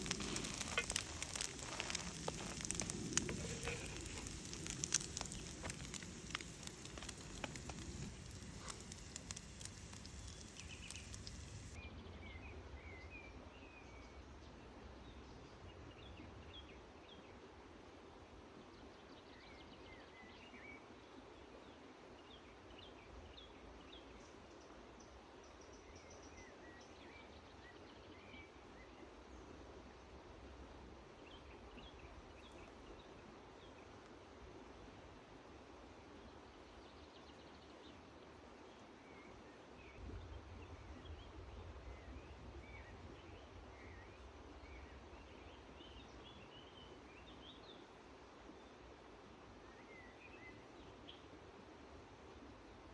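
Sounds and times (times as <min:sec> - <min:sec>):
campfire crackling and sizzling: 0:00.0 - 0:11.8
forest ambience: 0:00.0 - 0:11.8.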